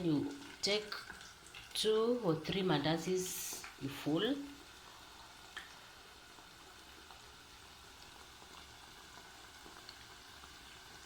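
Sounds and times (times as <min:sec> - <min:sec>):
dough frying in oil: 0:00.0 - 0:11.0.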